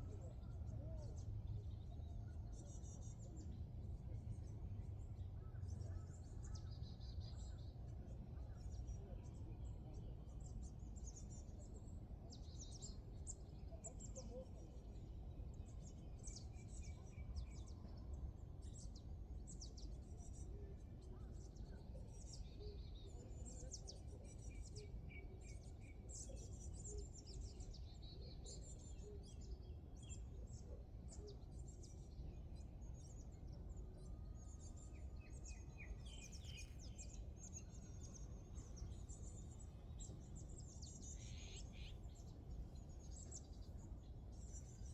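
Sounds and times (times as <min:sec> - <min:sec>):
birds chirping and singing: 0:34.6 - 0:44.9.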